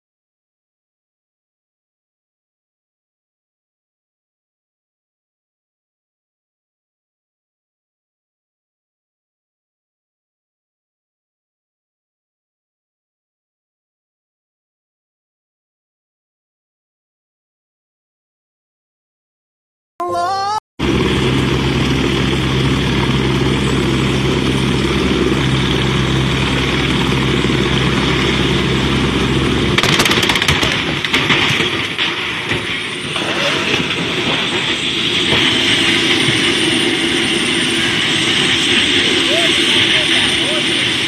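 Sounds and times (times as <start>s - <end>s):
vehicle engine hum: 20.8s - 31.1s
rough engine rumble: 20.8s - 41.0s
knocks and crackles: 29.8s - 35.6s.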